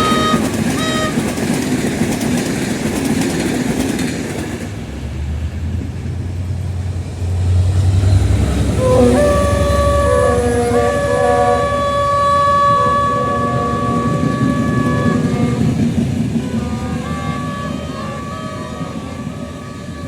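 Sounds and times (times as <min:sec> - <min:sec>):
locomotive air horn: 0:00.0 - 0:01.6, 0:08.4 - 0:20.0
train rumbling past: 0:00.0 - 0:20.0.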